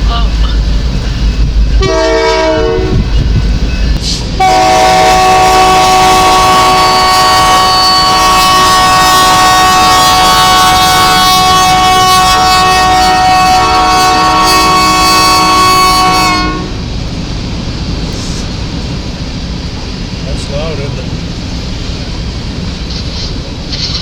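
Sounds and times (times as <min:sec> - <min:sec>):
locomotive air horn blasts: 0:01.8 - 0:03.2, 0:04.4 - 0:16.8.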